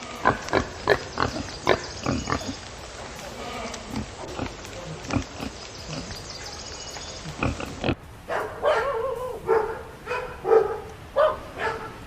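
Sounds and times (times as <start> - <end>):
pigs grunting: 0.0 - 6.6, 7.2 - 8.0
dog barking: 8.3 - 12.0.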